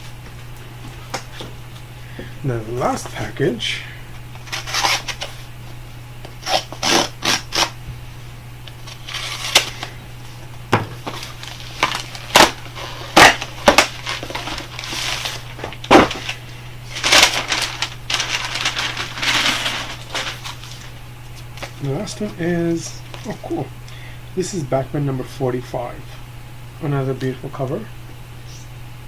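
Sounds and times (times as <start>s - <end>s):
tape and cardboard tearing: 4.4s - 5.4s, 6.4s - 7.8s, 8.8s - 9.9s, 11.0s - 20.8s.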